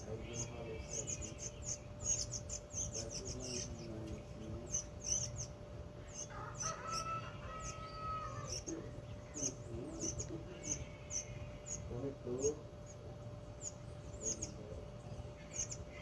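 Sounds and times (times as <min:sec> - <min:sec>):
songbirds chirping: 0:00.0 - 0:16.0
rooster crowing: 0:06.3 - 0:08.7.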